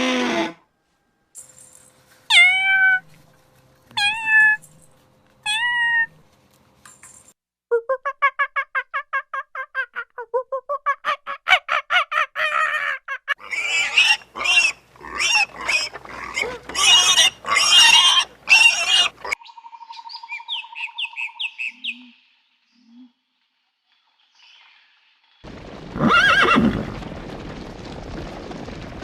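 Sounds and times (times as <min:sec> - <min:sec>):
rapid pitched animal calls: 0:11.2 - 0:19.4
harsh squealing calls: 0:13.4 - 0:19.4.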